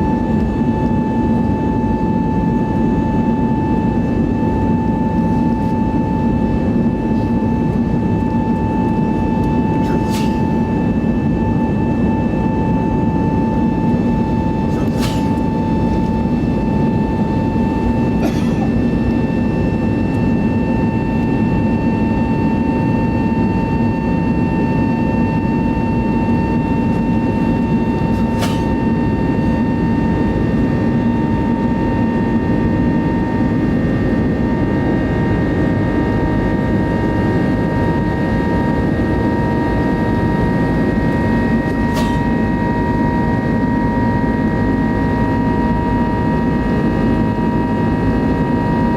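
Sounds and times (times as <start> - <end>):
jet engines rumbling and whining: 0.0 - 48.9.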